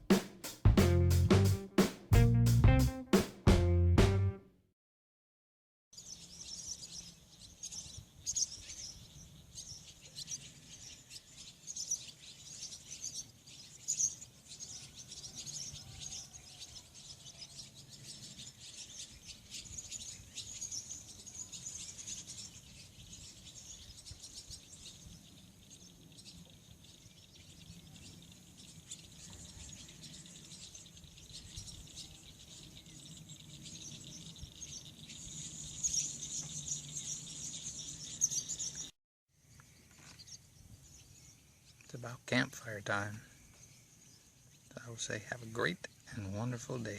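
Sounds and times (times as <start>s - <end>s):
birds chirping: 0.0s - 4.4s, 6.0s - 38.9s.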